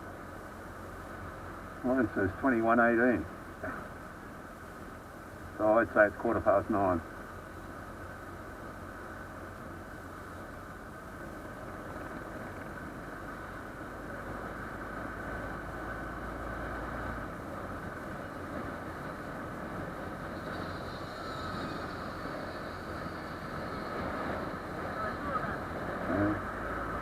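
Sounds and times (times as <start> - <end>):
motorcycle engine cruising: 6.8 - 27.0.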